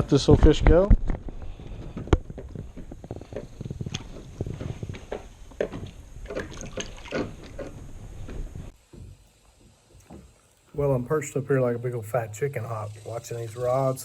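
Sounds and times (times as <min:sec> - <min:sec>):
knocks and rustles in a boat: 0:00.7 - 0:10.4
water sloshing: 0:05.6 - 0:08.0.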